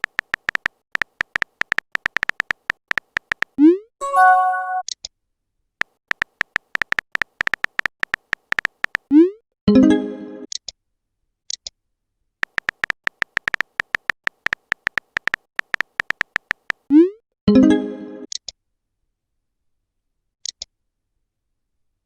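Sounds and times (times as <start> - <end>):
quick typing clicks: 0.0 - 3.6, 5.8 - 9.1, 12.4 - 16.9
brief pitched chime: 4.0 - 4.8.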